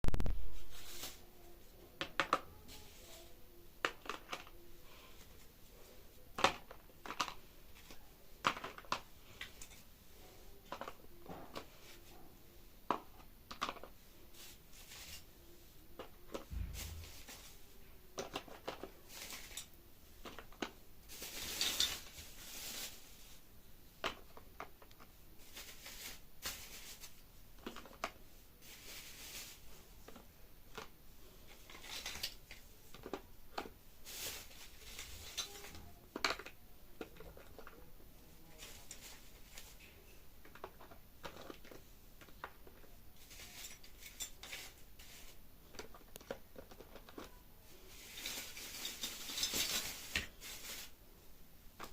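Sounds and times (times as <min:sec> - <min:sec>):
small objects clicking and tapping: 0:02.0 - 0:03.1, 0:03.8 - 0:04.6, 0:06.3 - 0:09.8, 0:10.6 - 0:12.0, 0:12.8 - 0:14.0, 0:18.1 - 0:22.0, 0:24.0 - 0:25.7, 0:27.6 - 0:28.2, 0:30.0 - 0:37.9, 0:38.6 - 0:50.3
soft thud: 0:16.5 - 0:17.4.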